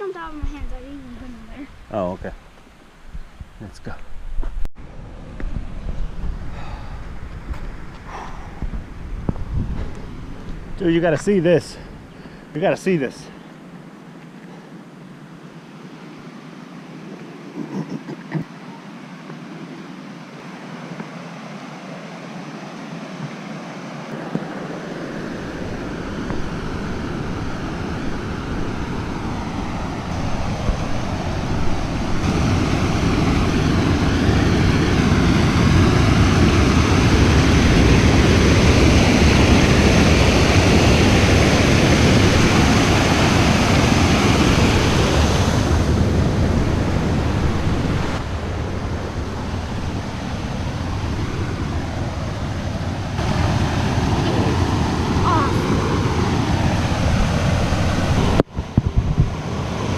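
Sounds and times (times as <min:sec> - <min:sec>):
waterfall roaring: 0:17.0 - 0:58.4.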